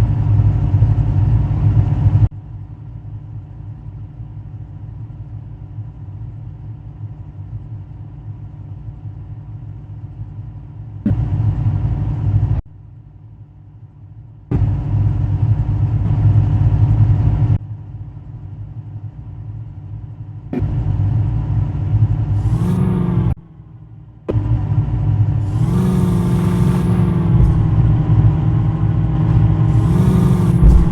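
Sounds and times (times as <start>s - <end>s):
jeep engine running: 14.5s - 17.6s, 19.2s - 30.9s.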